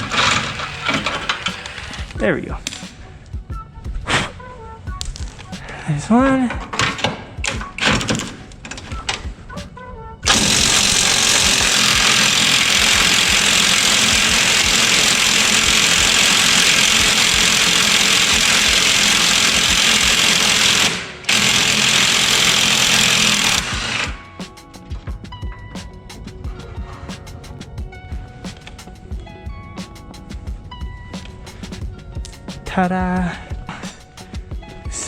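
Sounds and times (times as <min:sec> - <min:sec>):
impact wrench hammering bolt: 0:00.0 - 0:02.1, 0:10.2 - 0:24.2.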